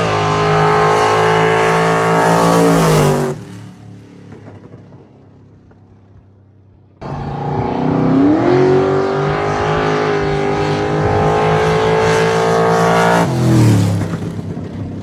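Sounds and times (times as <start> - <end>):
drag car engine revving: 0.0 - 3.5, 7.0 - 14.8.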